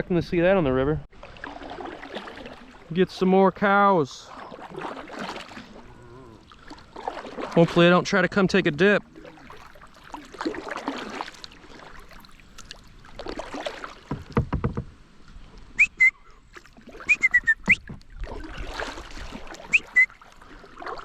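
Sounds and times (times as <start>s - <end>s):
paddle strokes swishing through water: 1.1s - 21.0s
bird whistled chirps: 15.8s - 16.3s, 17.0s - 17.8s, 19.7s - 20.2s.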